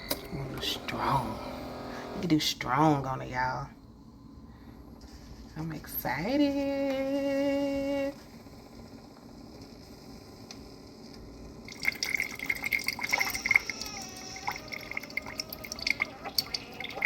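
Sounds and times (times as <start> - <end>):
coffee maker humming: 0.0 - 3.1, 5.6 - 17.0
coffee streaming into cup: 0.1 - 2.3, 11.6 - 17.0.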